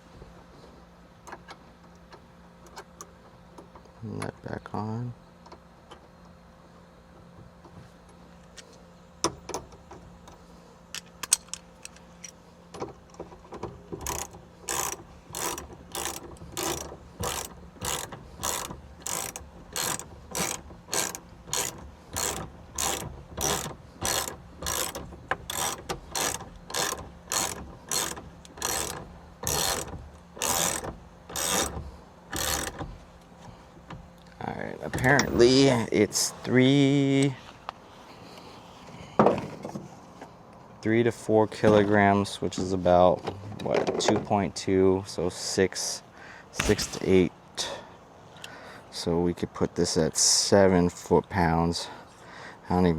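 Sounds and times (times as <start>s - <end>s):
hand ratchet clicking: 14.0s - 32.9s.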